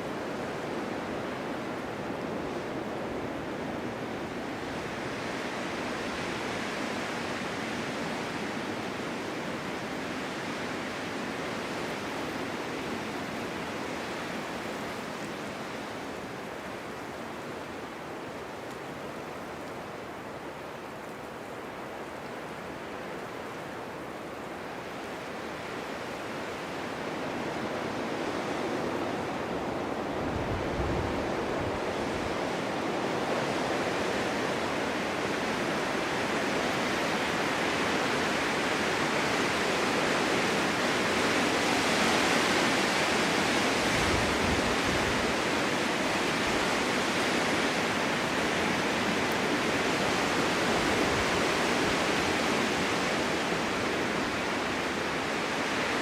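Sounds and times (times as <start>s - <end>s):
wind rushing in snowstorm: 0.0s - 56.0s
low rumble of wind gust: 27.1s - 38.0s, 43.0s - 56.0s.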